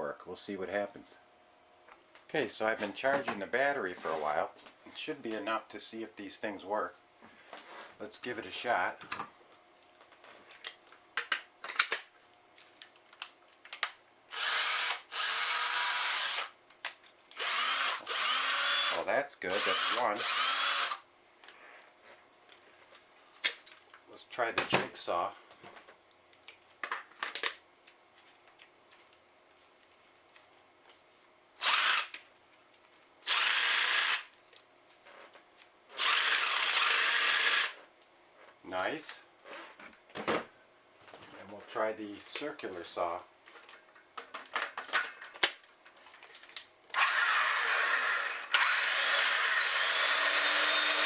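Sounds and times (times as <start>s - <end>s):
cordless jigsaw running: 14.3s - 16.5s, 17.4s - 19.0s, 19.6s - 21.0s, 31.6s - 32.2s, 33.2s - 34.3s, 36.0s - 37.8s, 46.9s - 51.0s
drill motor spinning: 14.3s - 16.5s, 17.4s - 21.0s, 31.6s - 32.2s, 33.2s - 34.3s, 35.9s - 37.8s, 46.9s - 51.0s.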